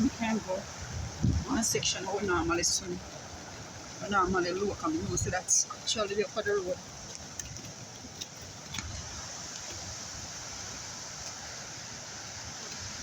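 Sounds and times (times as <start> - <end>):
fast-flowing river rushing: 0.0 - 13.0.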